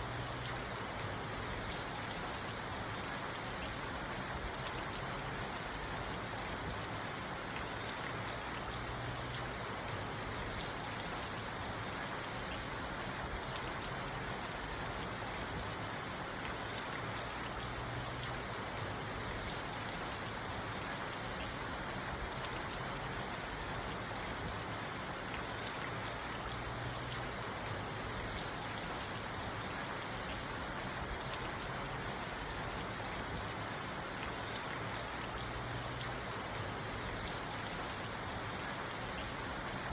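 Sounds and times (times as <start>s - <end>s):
rain on a car roof: 0.0s - 39.9s.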